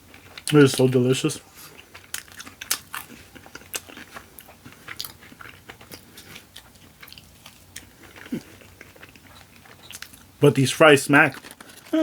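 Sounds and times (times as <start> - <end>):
wet crunchy chewing: 1.5 - 10.4, 11.3 - 12.0.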